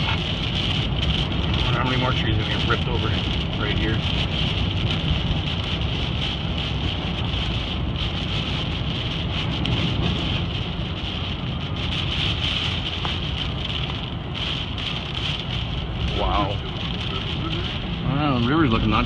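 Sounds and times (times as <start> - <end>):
car road and engine noise: 0.0 - 19.0
hiss of wind and rain: 0.0 - 19.0.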